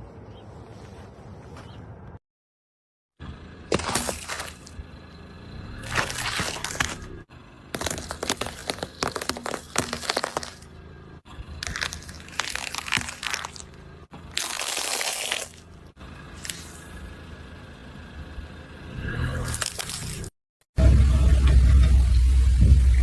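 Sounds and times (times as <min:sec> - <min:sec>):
objects crunching under car tyre: 0:03.6 - 0:17.0, 0:19.1 - 0:20.3.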